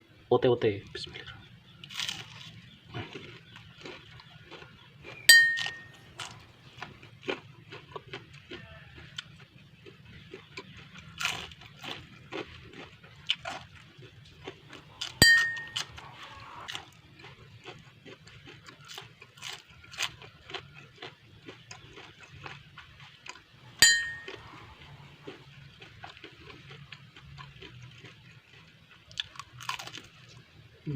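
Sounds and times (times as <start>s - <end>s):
crunchy chewing: 1.1s - 30.9s
sharp clink: 5.3s - 6.1s, 15.1s - 16.0s, 23.8s - 24.4s.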